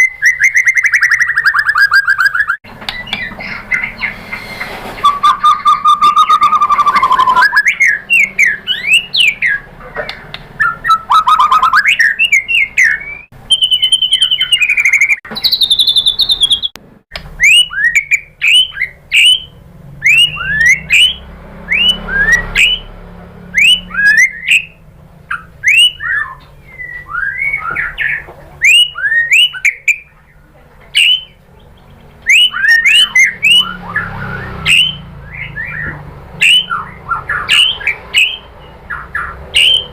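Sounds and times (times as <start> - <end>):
bird song warbles and whistles: 0.0 - 39.9
rapid sweeping chirps: 10.6 - 16.8, 31.0 - 39.9.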